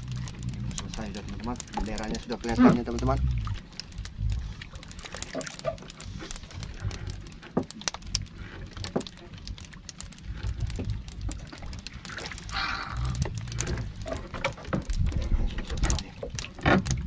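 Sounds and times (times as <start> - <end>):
water splashes and drips: 0.0 - 17.0
wind buffeting microphone: 14.8 - 16.2.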